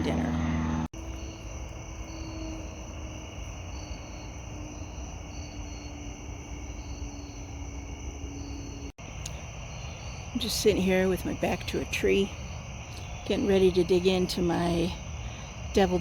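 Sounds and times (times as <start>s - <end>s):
low steady rumble: 0.0s - 6.1s
crickets and insects chirping: 0.1s - 16.0s.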